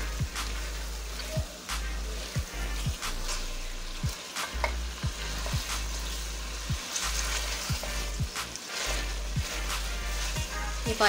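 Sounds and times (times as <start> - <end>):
meat sizzling in a pan: 0.0 - 11.0
spatula scraping metal pan: 7.2 - 11.0.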